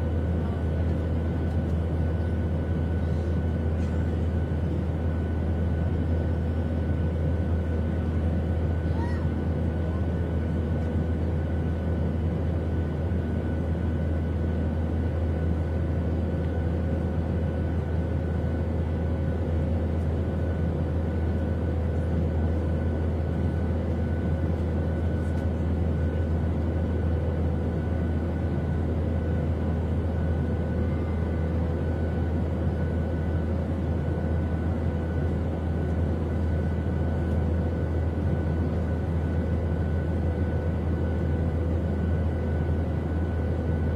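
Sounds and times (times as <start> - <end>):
low rumble of engine and air: 0.0 - 43.9
faint steady whining tones: 19.8 - 43.9.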